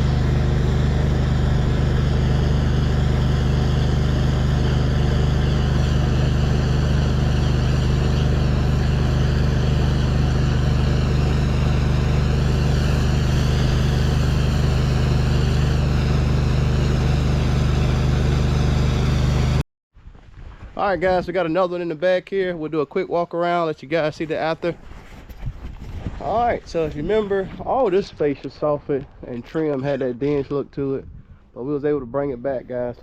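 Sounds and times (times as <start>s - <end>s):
pressure washer engine droning: 0.0s - 19.6s.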